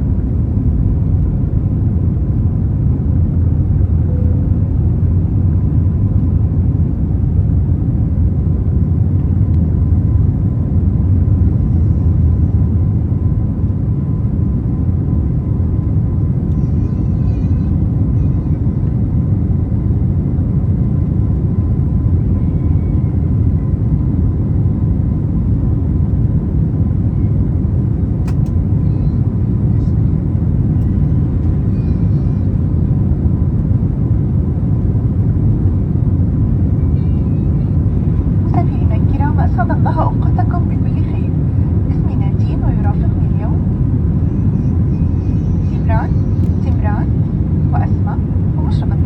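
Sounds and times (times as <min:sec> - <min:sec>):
jet engine cabin rumble: 0:00.0 - 0:49.0
faint high tone: 0:04.0 - 0:04.7, 0:28.8 - 0:32.6.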